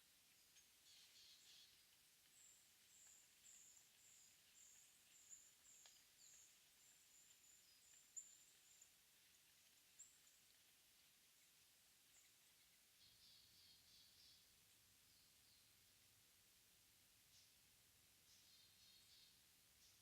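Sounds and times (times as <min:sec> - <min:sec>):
faint ticks: 0:00.3 - 0:13.1.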